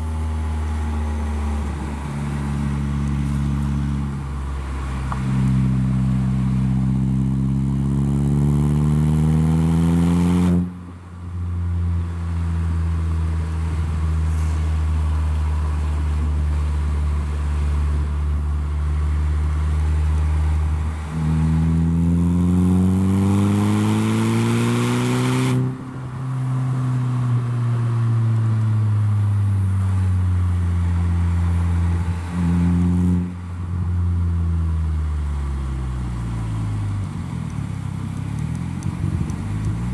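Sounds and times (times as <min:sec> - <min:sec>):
car engine revving: 0:13.7 - 0:28.1.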